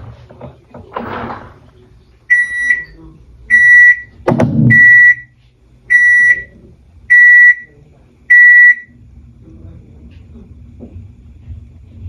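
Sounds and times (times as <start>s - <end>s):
washing machine high beeps: 2.3s - 7.7s, 8.3s - 9.0s
sharp knock: 4.2s - 4.9s.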